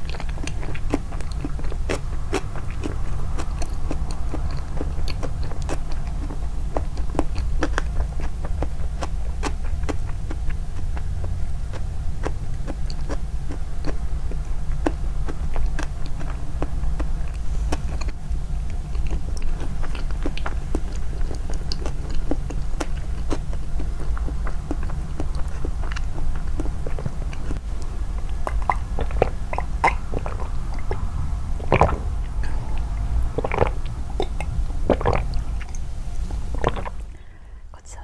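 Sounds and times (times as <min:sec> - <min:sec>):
chewing and biting: 0:00.0 - 0:37.2
steady low rumble: 0:00.0 - 0:38.0
wet mouth clicks: 0:24.2 - 0:37.2.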